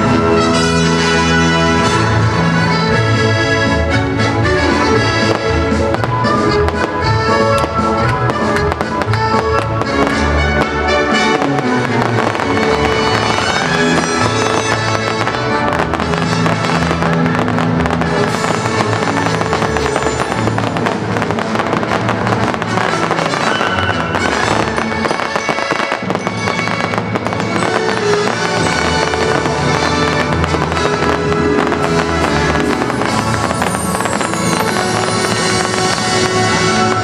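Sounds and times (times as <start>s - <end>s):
fireworks bursting and crackling: 0.0s - 37.0s
loud melodic music: 0.0s - 37.0s.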